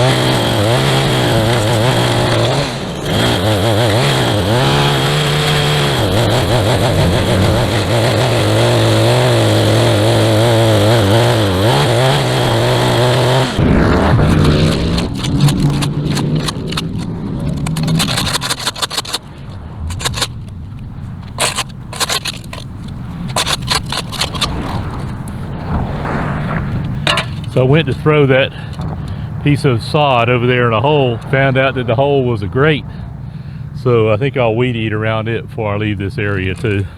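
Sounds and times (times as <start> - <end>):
small gas engine running: 0.0 - 20.6, 21.3 - 25.4
scraping and rustling: 13.2 - 29.4.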